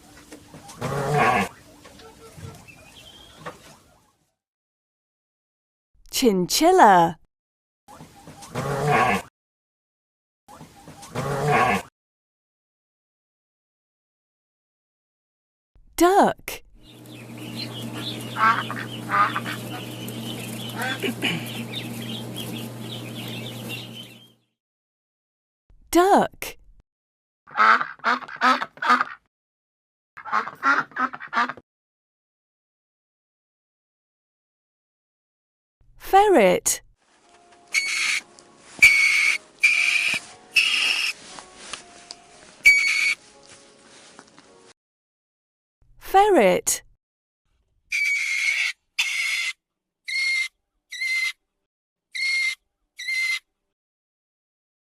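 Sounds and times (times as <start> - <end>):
low hum: 16.8 - 24.3
high chirping: 16.8 - 24.4, 37.7 - 38.2, 38.8 - 41.2, 42.6 - 43.2
ducks quacking: 17.0 - 24.3, 27.5 - 29.2, 30.2 - 31.6, 37.7 - 38.2, 38.8 - 41.2, 42.6 - 43.2
ferret hissing cries: 37.8 - 38.2, 38.8 - 41.2, 42.7 - 43.2.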